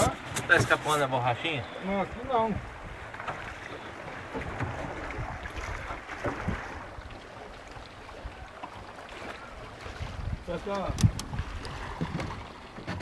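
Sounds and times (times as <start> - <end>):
boat low rumble: 0.0 - 13.0
water wash from boat: 0.0 - 13.0
wind buffeting microphone: 9.8 - 12.5.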